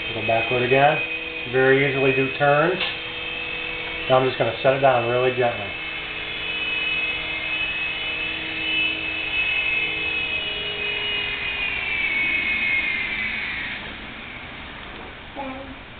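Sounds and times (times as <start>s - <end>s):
toy helicopter motors whining: 0.0s - 14.1s.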